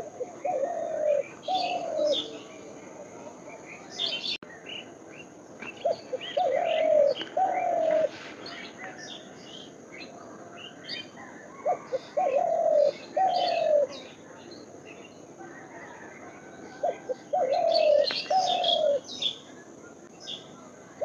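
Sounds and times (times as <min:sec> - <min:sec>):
dove cooing: 0:00.0 - 0:04.4, 0:05.8 - 0:09.0, 0:11.2 - 0:14.2, 0:15.5 - 0:19.2
small birds chirping: 0:00.0 - 0:21.0.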